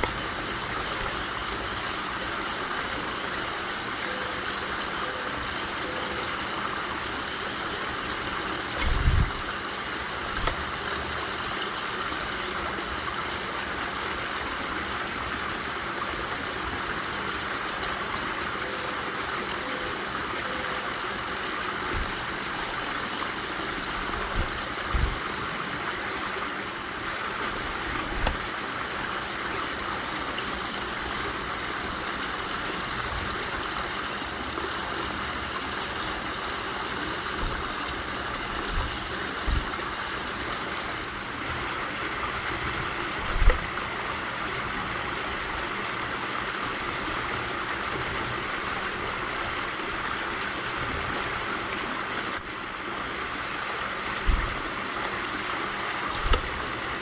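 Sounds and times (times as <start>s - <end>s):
outdoor background hiss: 0.0s - 57.0s
soft low thumps: 21.9s - 22.3s, 24.2s - 25.2s, 38.8s - 39.7s.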